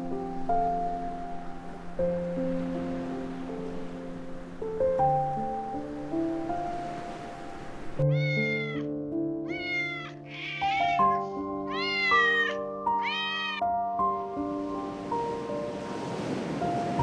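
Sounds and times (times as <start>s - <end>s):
soft keyboard music: 0.0s - 17.0s
cat meowing: 8.0s - 8.9s, 9.5s - 13.6s.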